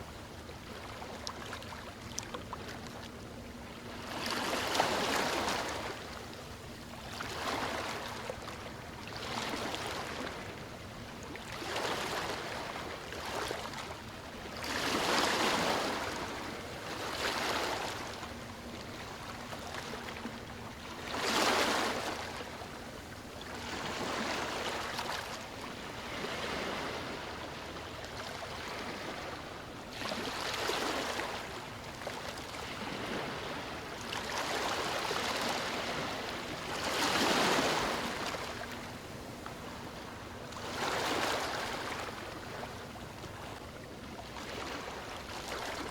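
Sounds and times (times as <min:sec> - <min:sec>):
small waves washing on beach: 0:23.6 - 0:45.9.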